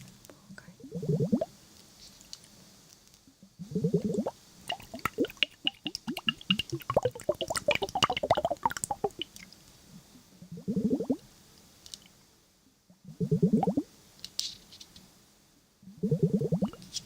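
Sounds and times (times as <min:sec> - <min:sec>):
rising gurgle: 0:03.7 - 0:09.5
liquid drips and squishes: 0:04.0 - 0:09.7.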